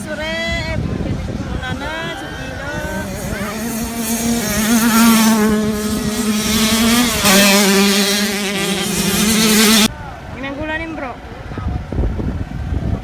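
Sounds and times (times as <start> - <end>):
dirt bike engine revving high: 1.4 - 9.9.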